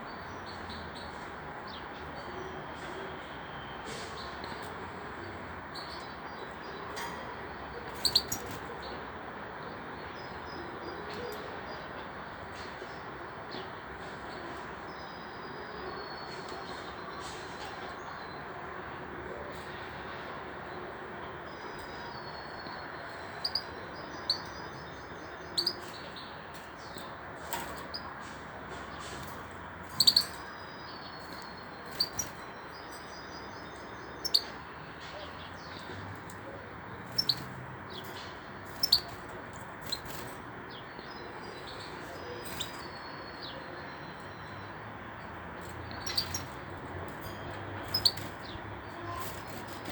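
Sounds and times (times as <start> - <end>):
bird chirping: 7.9 - 8.6, 21.7 - 28.1, 29.8 - 36.0, 37.0 - 44.8, 45.6 - 49.9
goldfinch chirping: 8.0 - 8.6, 25.5 - 26.3, 29.9 - 33.3, 34.0 - 34.6, 37.1 - 38.1, 38.7 - 39.2, 45.9 - 46.6, 47.3 - 48.6.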